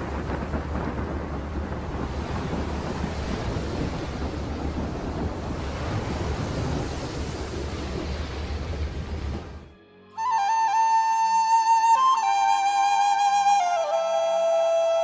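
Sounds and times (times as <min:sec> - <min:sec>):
sea and wind rushing: 0:00.0 - 0:09.8.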